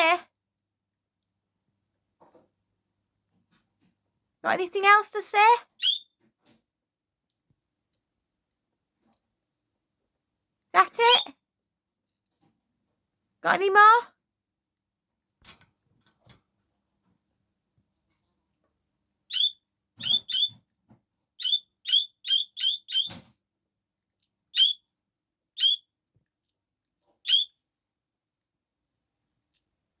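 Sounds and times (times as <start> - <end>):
budgerigar chirping: 5.8 - 6.0, 19.3 - 20.6, 21.4 - 23.2, 24.6 - 24.8, 25.6 - 25.8, 27.3 - 27.5.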